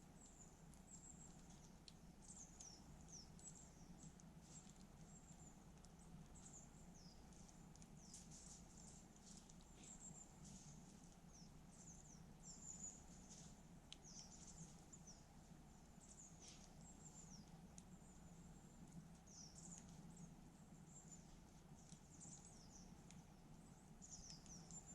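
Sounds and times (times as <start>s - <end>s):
campfire crackling: 0.0s - 24.9s
low steady rumble: 0.0s - 24.9s.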